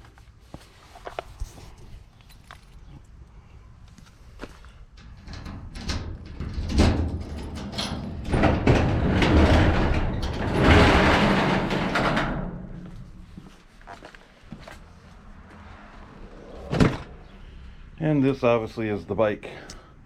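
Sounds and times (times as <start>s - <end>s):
garage door rolling rattle: 4.8s - 13.6s
garage door knocks and rattles: 5.1s - 13.4s.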